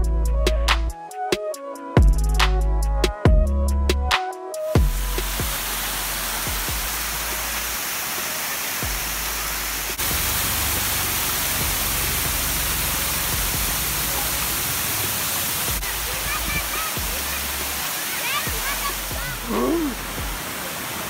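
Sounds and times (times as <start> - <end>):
background music: 0.0 - 7.9, 8.8 - 14.8, 15.7 - 20.4
waterfall rushing: 4.6 - 21.0.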